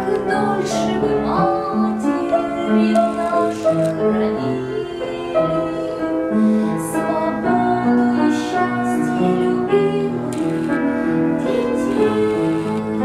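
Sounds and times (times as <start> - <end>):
woman singing slow song: 0.0 - 6.2
piano accompaniment: 0.0 - 13.0.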